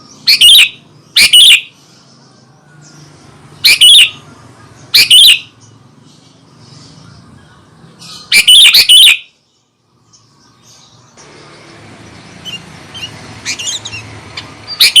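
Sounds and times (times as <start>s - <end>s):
bird calling in bright notes: 0.0s - 1.8s, 3.6s - 5.6s, 6.8s - 9.4s, 11.2s - 15.0s.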